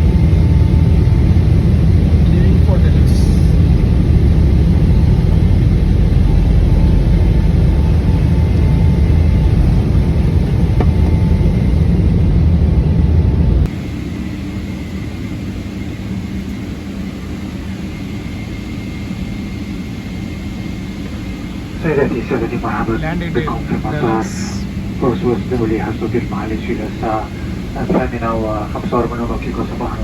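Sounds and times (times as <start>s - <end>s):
airliner cabin rumble: 0.0s - 30.0s
quiet cabin hum: 21.8s - 30.0s.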